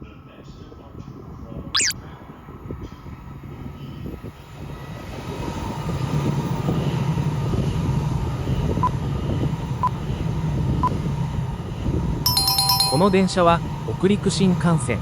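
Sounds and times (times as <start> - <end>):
bullet train running noise: 4.4 - 15.0.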